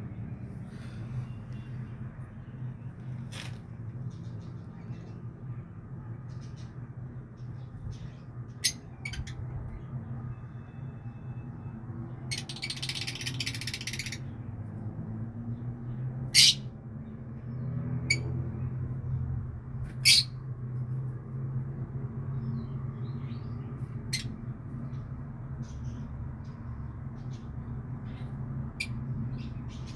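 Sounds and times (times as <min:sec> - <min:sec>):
bird chirping: 0:12.2 - 0:14.4.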